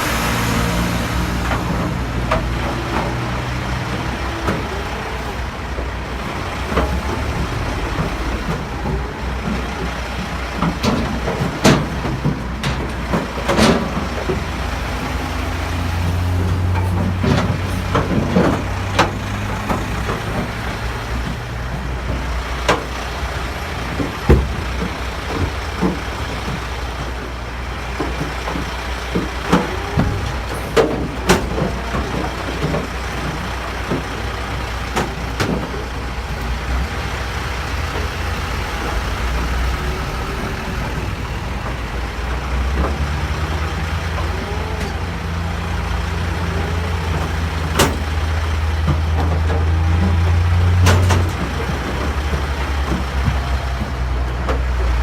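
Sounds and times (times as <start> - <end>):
truck engine idling: 0.0 - 55.0
cow knocking against crate: 24.0 - 26.6, 47.1 - 54.6.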